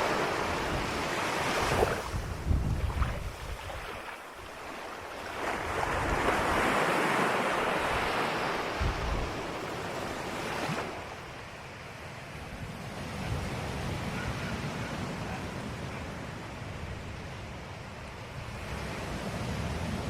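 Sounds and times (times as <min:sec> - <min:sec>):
ocean waves washing on shore: 0:00.0 - 0:20.0.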